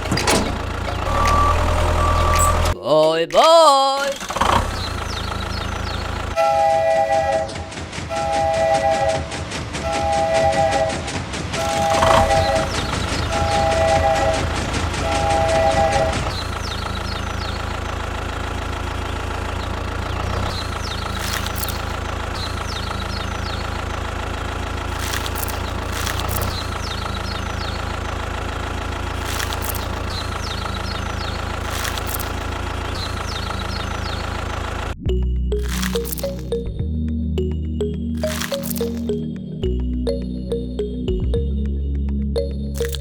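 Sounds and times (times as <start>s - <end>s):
engine idling: 0.0s - 2.8s, 3.4s - 7.2s, 9.8s - 36.6s
brief clicks: 21.1s - 22.0s, 31.6s - 32.5s, 38.2s - 39.2s, 42.8s - 43.0s
short high chirps: 35.5s - 36.7s, 37.8s - 39.3s.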